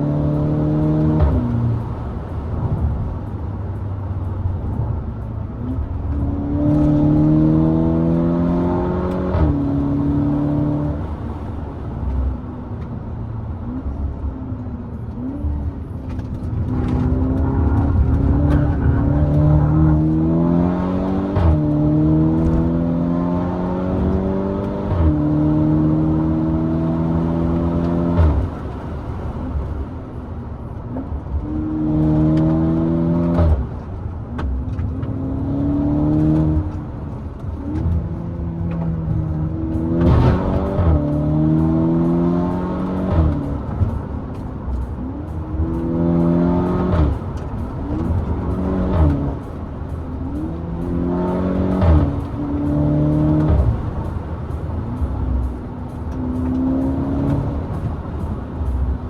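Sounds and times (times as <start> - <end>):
car engine accelerating through gears: 0.0 - 59.0
exhaust cracks on shifts: 15.0 - 22.9.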